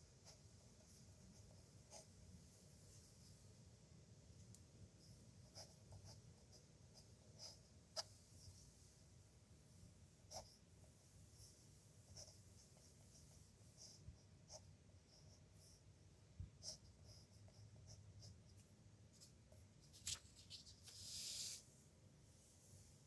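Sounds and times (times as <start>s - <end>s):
pen scratching on paper: 0.2s - 2.2s, 5.0s - 8.6s, 10.2s - 10.7s, 11.4s - 15.9s, 16.6s - 18.6s.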